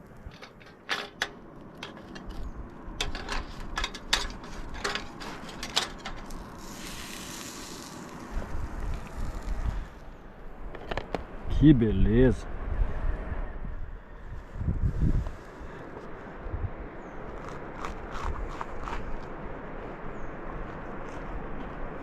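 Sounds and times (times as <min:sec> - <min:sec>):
low wind rumble: 0:00.0 - 0:22.0
brief hiss: 0:06.6 - 0:10.0.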